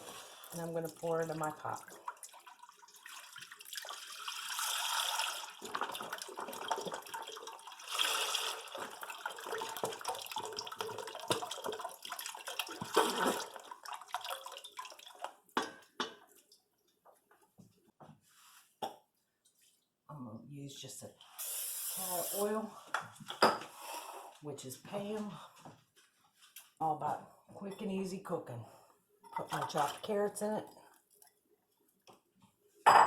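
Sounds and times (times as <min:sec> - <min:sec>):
broth pouring into pot: 0:00.0 - 0:15.3.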